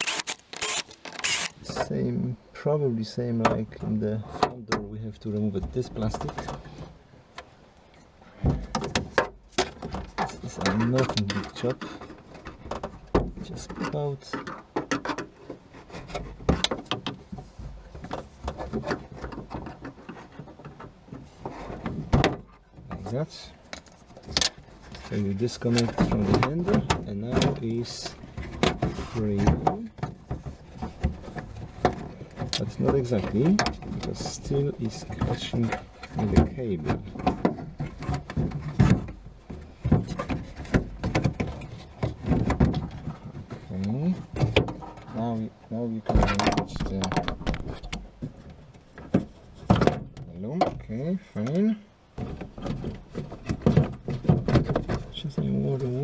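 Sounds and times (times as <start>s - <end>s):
plastic trim clicking and snapping: 0.0s - 1.6s.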